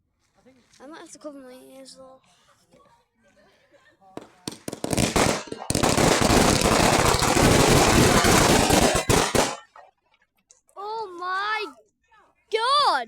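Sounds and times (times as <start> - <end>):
firework crackling: 4.2 - 9.6
firework bangs: 4.2 - 9.7.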